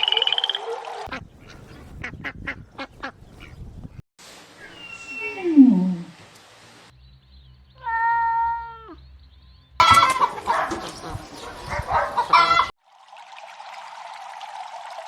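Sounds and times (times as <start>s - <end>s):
cat meowing: 7.8s - 9.0s
chickens clucking and squawking: 9.8s - 12.7s.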